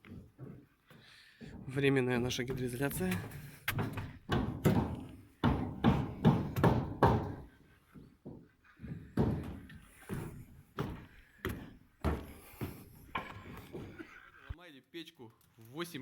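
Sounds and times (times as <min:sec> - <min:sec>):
dull knocks: 0:02.5 - 0:07.6, 0:08.3 - 0:14.1.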